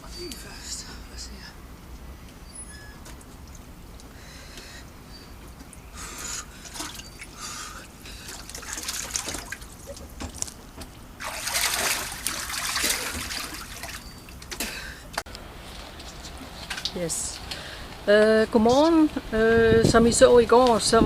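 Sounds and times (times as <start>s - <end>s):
water splashing and trickling: 2.8s - 4.2s, 5.4s - 15.2s.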